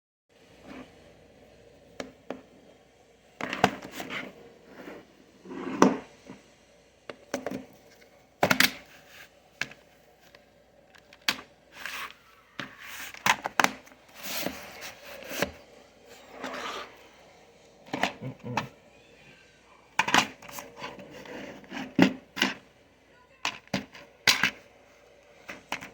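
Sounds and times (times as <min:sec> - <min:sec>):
plastic cases clicking and knocking: 0:08.4 - 0:08.9, 0:09.6 - 0:11.5, 0:12.6 - 0:14.6, 0:20.0 - 0:20.7, 0:21.6 - 0:22.6, 0:23.4 - 0:24.6, 0:25.4 - 0:25.9.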